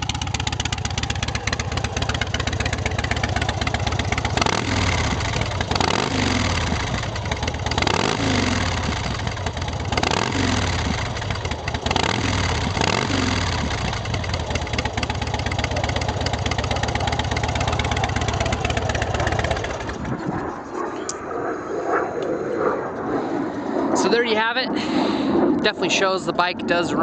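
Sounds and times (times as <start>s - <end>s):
motorcycle engine revving: 0.0s - 21.3s.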